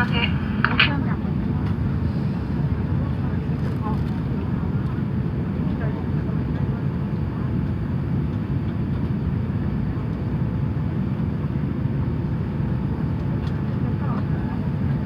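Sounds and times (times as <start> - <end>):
air-conditioning hiss: 0.0 - 1.2
faint steady hum: 0.0 - 2.9
aircraft cabin engine rumble: 0.0 - 15.0.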